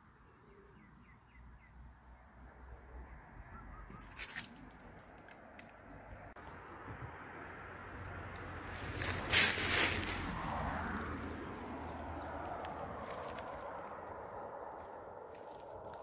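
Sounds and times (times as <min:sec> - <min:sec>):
faint bird calls: 0:03.4 - 0:04.2.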